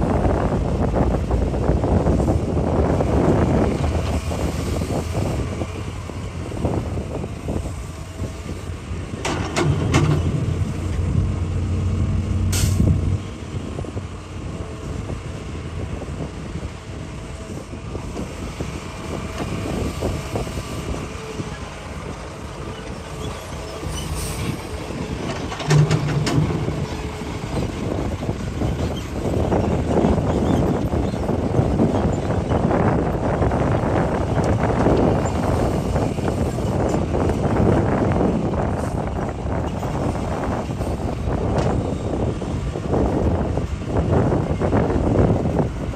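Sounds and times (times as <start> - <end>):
excavator diesel engine under load: 0.0 - 45.9
short hydraulic hiss: 12.5 - 12.9.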